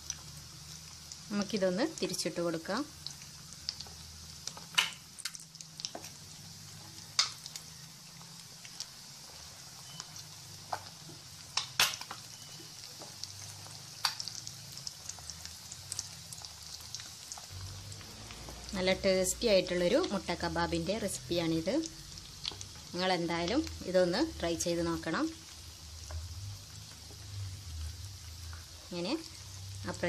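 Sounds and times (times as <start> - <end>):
food frying in hot oil: 0.0 - 30.0
sharp pops and crackles: 3.0 - 6.2, 7.0 - 8.9, 9.8 - 17.6.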